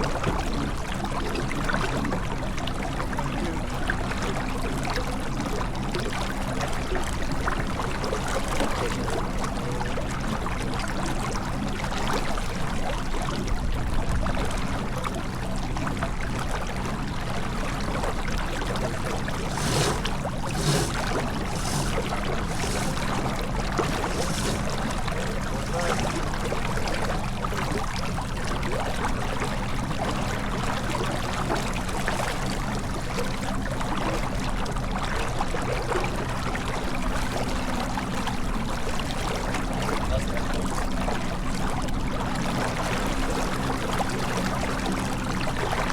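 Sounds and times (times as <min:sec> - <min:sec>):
water rushing along hull: 0:00.0 - 0:45.9
short splashes or knocks: 0:19.2 - 0:26.6.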